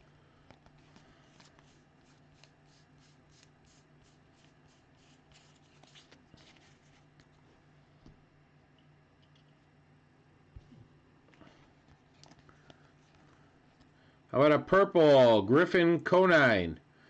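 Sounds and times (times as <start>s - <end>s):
cards being flipped by hand: 0.4s - 7.4s, 11.8s - 13.9s.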